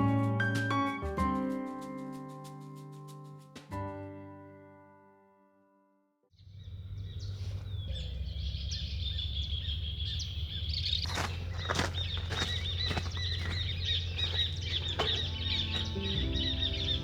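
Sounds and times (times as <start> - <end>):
small birds chirping: 6.4 - 17.0
low outdoor rumble: 6.5 - 17.0.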